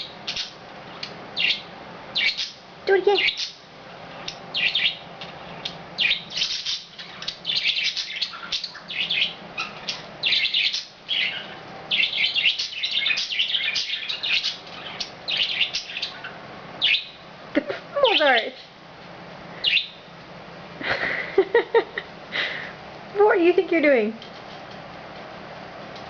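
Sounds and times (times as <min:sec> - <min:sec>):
budgerigars chirping: 0:00.0 - 0:03.6, 0:04.2 - 0:17.3, 0:18.0 - 0:18.7, 0:19.6 - 0:20.1.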